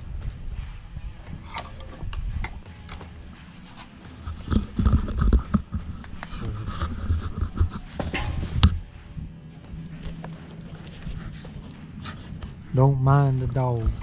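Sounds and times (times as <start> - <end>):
dog panting: 10.0 - 14.0.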